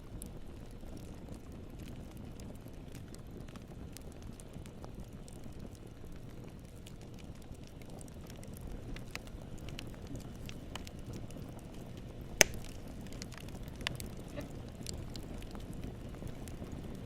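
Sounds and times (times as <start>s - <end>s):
low rumble of flames: 0.0s - 17.0s
wood crackling: 0.1s - 17.0s
sharp loud pop: 12.4s - 12.7s.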